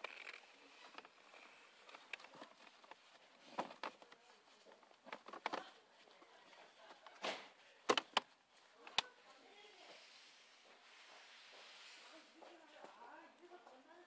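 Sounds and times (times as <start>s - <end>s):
sharp plastic clicks: 7.2s - 8.3s.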